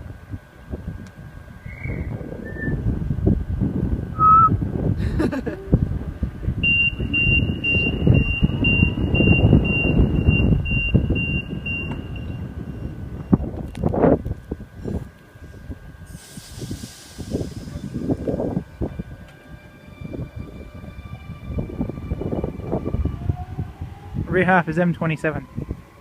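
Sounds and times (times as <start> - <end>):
low rumble of train: 0.0 - 26.0
high beeping: 6.6 - 13.5.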